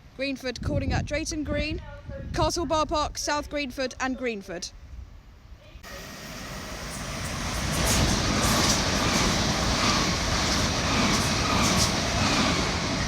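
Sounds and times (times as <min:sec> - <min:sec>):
train passing at speed: 0:05.8 - 0:13.0.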